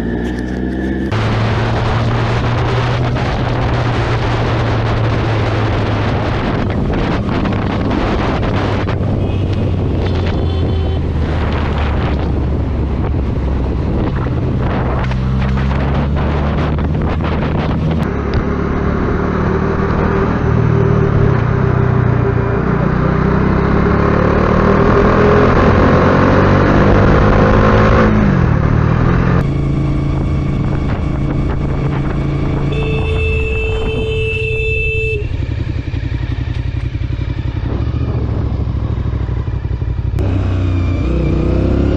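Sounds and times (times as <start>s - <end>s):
motorcycle engine revving: 0.0s - 41.9s
steady high tone: 32.7s - 35.5s.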